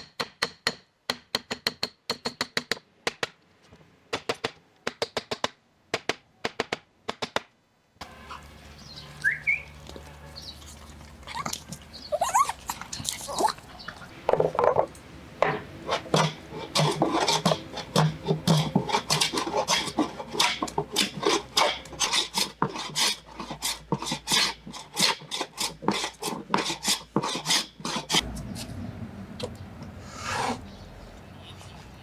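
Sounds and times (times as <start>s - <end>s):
hand tool rasping on wood: 15.8s - 28.2s.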